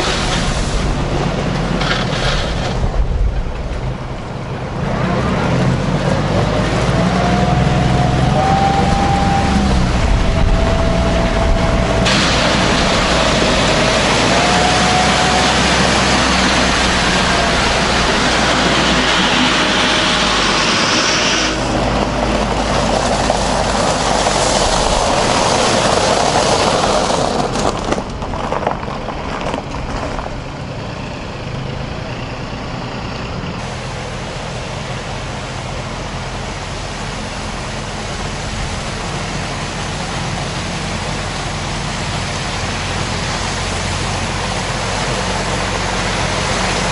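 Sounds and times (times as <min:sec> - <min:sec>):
loud rushing hiss: 0:00.0 - 0:01.2, 0:07.7 - 0:27.2, 0:33.6 - 0:46.9
tractor engine rumbling: 0:00.0 - 0:46.9.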